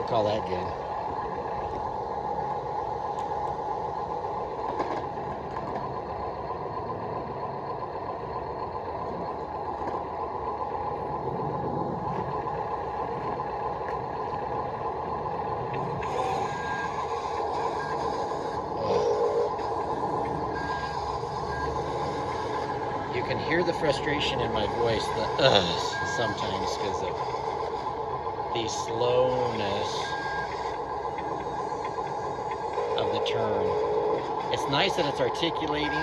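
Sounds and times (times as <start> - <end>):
toy motors and gearboxes whining: 14.3 - 36.0.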